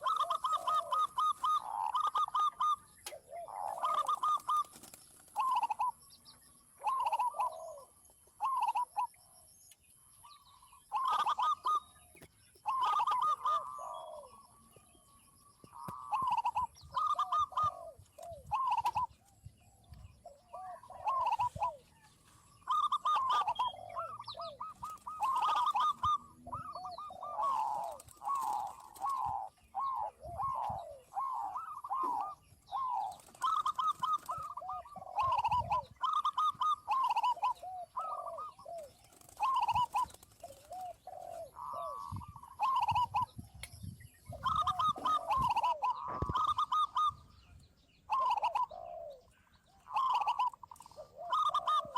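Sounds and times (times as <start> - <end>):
doves cooing: 0.0 - 6.0, 6.7 - 9.4, 10.2 - 14.9, 15.5 - 43.6, 44.2 - 51.9.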